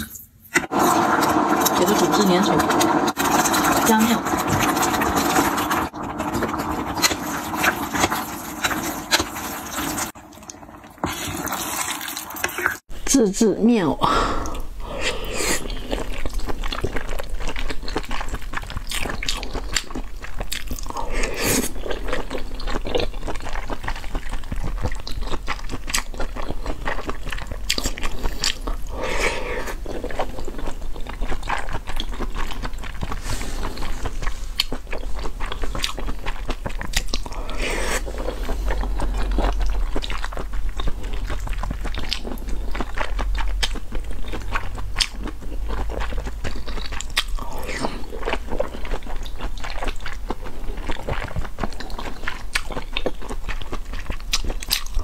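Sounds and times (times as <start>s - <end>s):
close chewing with wet clicks: 15.6s - 28.9s, 29.8s - 55.0s.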